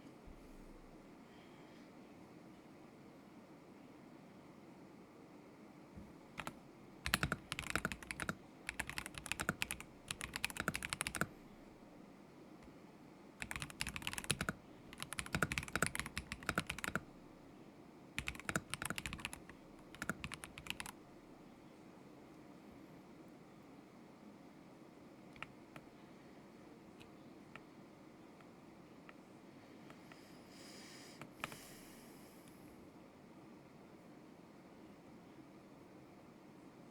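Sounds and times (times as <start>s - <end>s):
mechanical keyboard typing: 6.4s - 11.3s, 13.4s - 17.1s, 18.2s - 21.0s.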